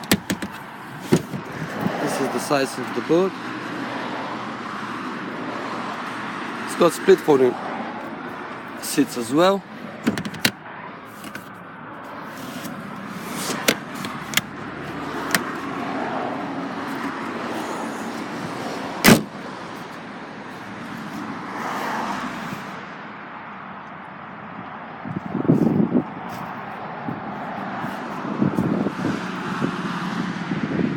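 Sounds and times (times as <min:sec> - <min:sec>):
car seat latch clicks: 0:00.0 - 0:01.4, 0:10.0 - 0:10.6, 0:13.5 - 0:14.5, 0:15.2 - 0:15.6, 0:19.0 - 0:19.3.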